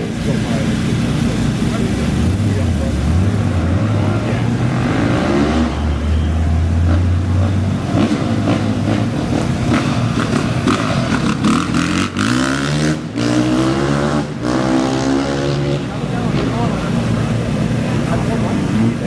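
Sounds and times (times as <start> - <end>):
racing engines revving: 0.0 - 19.0.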